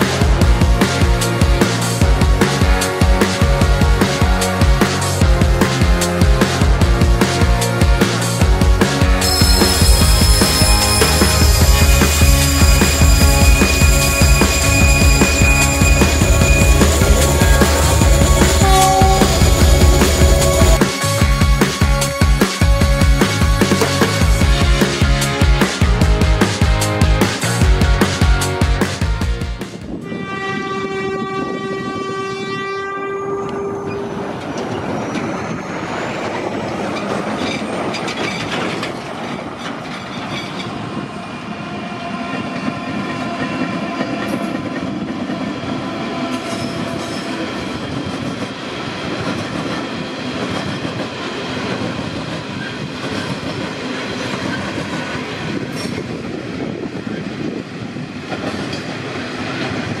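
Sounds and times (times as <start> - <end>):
train wagons rumbling on track: 0.0 - 60.0
locomotive horn: 9.0 - 22.4, 30.0 - 34.2
steady whine: 9.2 - 23.4.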